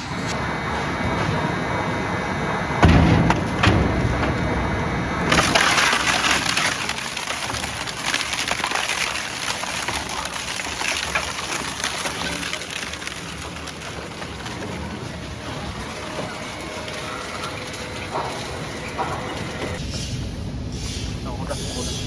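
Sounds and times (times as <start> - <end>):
wood chipper cracking wood: 2.8 - 4.6, 5.2 - 19.8.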